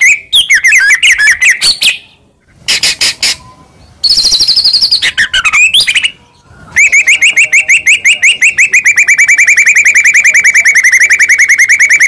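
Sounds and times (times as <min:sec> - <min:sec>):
bird singing fast trill: 0:02.8 - 0:07.7.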